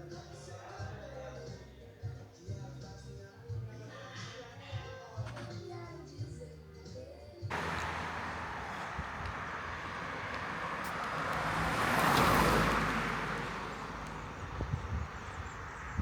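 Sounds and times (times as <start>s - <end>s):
road vehicle passing by: 7.5s - 16.0s.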